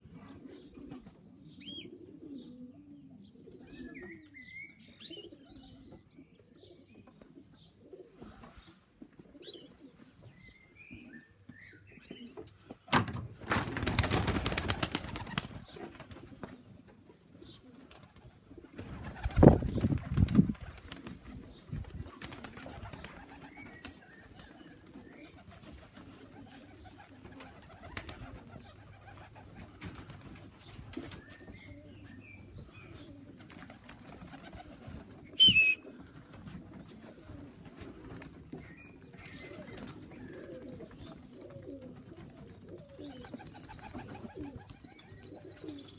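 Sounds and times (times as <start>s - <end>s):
pigeons cooing: 0.0s - 12.5s, 13.8s - 45.9s
pigeon wings flapping: 13.4s - 16.6s, 17.9s - 31.3s, 33.4s - 38.4s.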